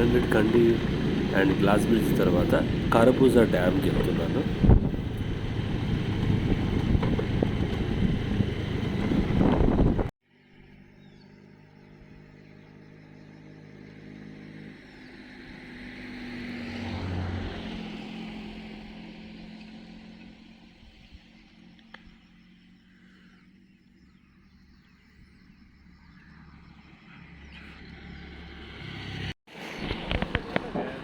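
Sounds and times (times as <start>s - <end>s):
jolting vehicle rumble: 0.0s - 10.1s
quiet engine hum: 0.0s - 10.1s
passing vehicle: 0.0s - 31.0s.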